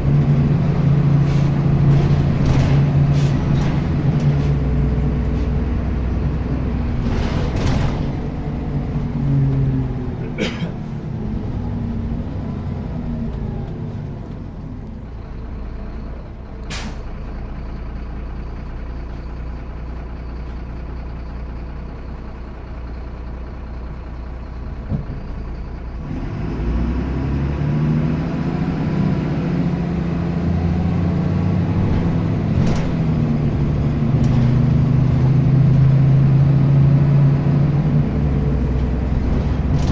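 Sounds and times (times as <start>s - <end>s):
diesel bus engine running: 0.0s - 39.9s
air brake hisses: 16.7s - 17.1s.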